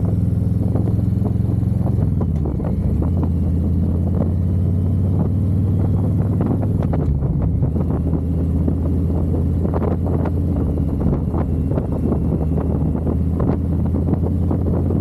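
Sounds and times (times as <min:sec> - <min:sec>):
motorcycle engine running: 0:00.0 - 0:15.0
wind buffeting microphone: 0:05.1 - 0:15.0.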